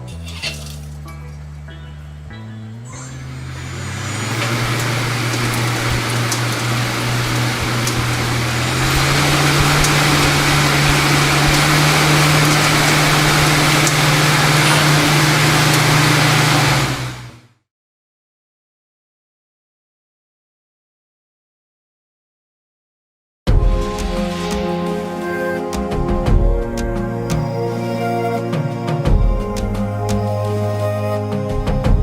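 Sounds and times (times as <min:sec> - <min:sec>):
machine motor hum: 0:03.1 - 0:17.5.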